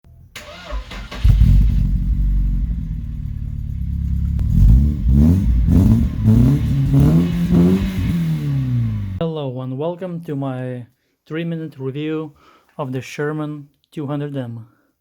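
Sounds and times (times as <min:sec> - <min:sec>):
engine starting and revving: 0:00.4 - 0:09.2.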